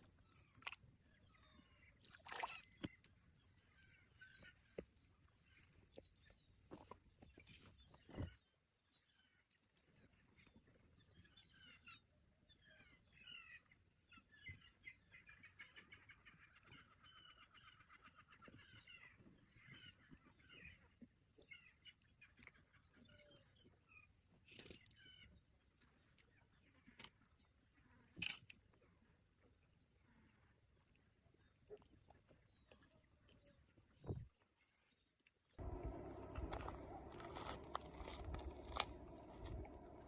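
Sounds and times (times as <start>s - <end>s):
faint birds calling: 9.1s - 25.4s, 35.6s - 40.0s.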